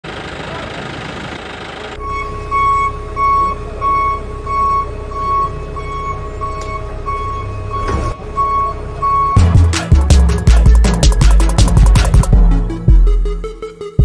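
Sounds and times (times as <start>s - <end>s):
reversing alarm beeping: 2.0s - 11.7s.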